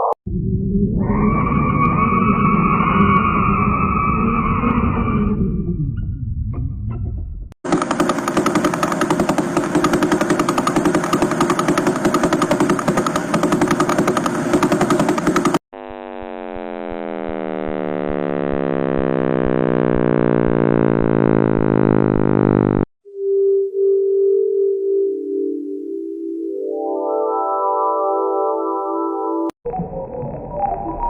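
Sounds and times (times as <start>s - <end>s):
dense pulsing buzz: 7.7s - 22.9s.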